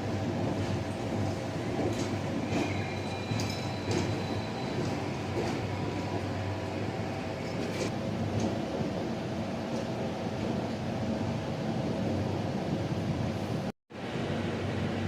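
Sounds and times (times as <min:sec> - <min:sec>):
train rumbling: 0:00.0 - 0:15.0
faint high squeal: 0:02.6 - 0:05.2.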